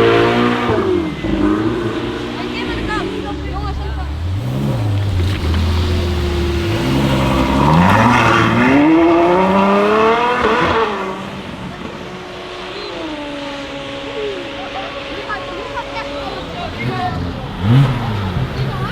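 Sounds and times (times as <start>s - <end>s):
sports car engine revving: 0.0s - 18.9s.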